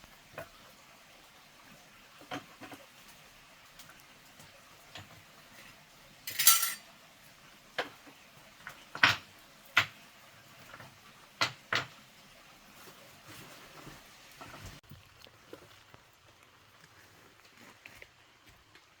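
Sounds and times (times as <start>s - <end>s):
hard objects clinking together: 6.3s - 6.8s.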